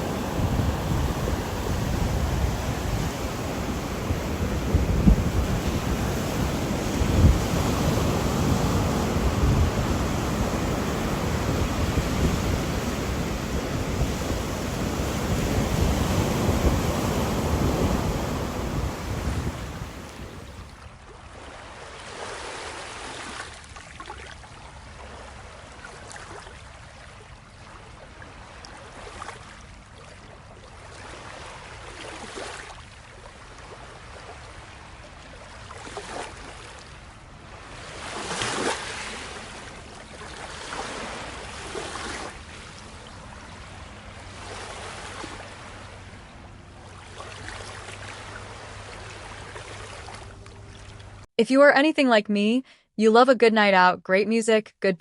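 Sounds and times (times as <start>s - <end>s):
ocean surf roar: 0.0s - 20.8s
wind buffeting microphone: 0.0s - 20.8s
soft washes of water: 0.0s - 51.3s.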